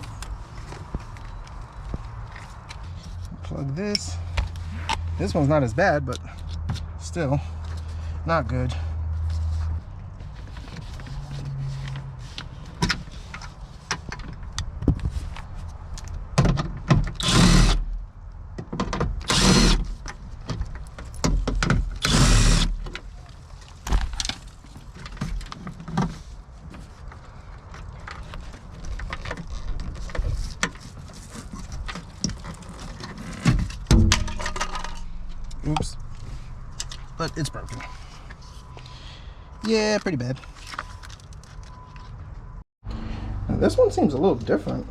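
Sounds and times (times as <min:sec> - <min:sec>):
rasping bursts: 0:17.2 - 0:17.9, 0:19.2 - 0:19.9, 0:22.0 - 0:22.8.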